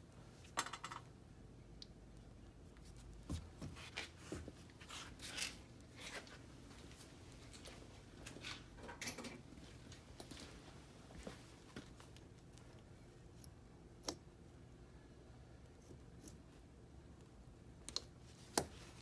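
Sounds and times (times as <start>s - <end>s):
clicks and scrapes of small parts: 0.5s - 1.1s, 4.9s - 6.4s.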